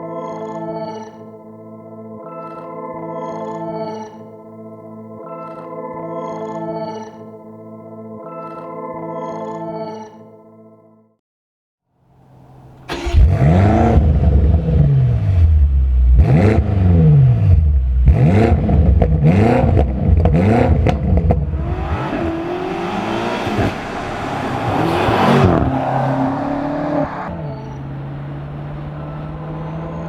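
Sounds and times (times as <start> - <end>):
car engine revving: 12.2 - 30.0
exhaust cracks: 12.3 - 30.0.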